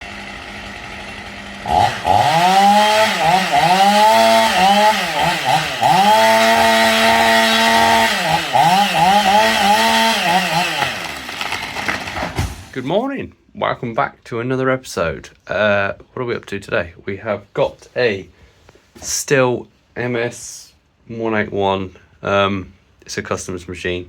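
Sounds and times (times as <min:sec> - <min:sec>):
chainsaw engine revving: 0:00.0 - 0:12.9.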